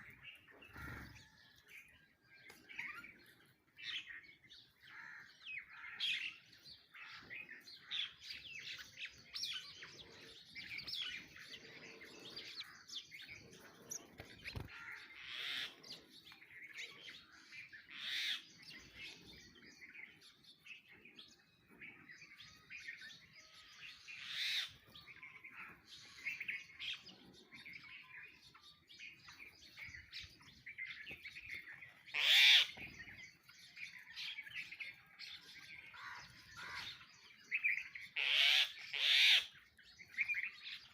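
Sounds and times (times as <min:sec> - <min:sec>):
louder bird calls: 0:00.0 - 0:01.4, 0:04.9 - 0:19.4, 0:23.9 - 0:27.0, 0:31.4 - 0:33.2, 0:35.8 - 0:40.9
sparrows chirping: 0:00.0 - 0:40.9.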